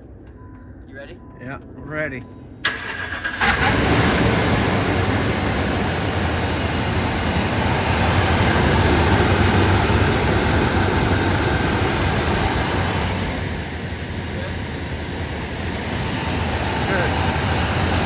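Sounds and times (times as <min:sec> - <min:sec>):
car engine starting and running: 0:02.6 - 0:18.0.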